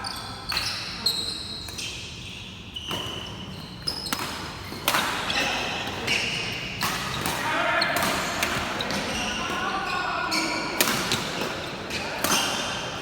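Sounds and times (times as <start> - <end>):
shoes squeaking on court: 0.0 - 13.0
rackets hitting shuttlecock: 4.0 - 13.0.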